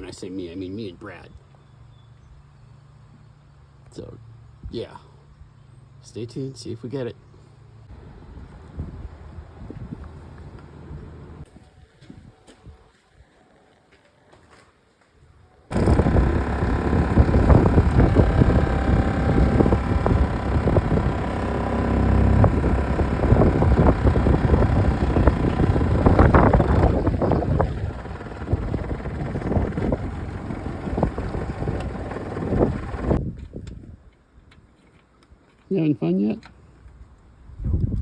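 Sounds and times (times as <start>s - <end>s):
loud running machinery: 15.7s - 33.2s
wind buffeting microphone: 15.7s - 34.0s, 37.5s - 38.0s.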